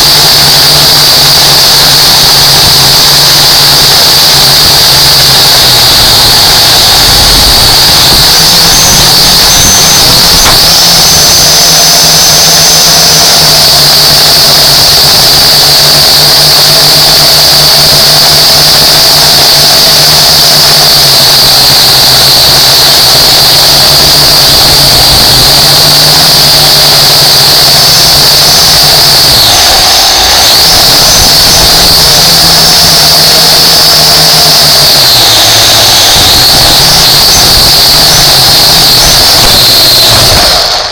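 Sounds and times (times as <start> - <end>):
drone propellers whining: 0.0 - 40.9.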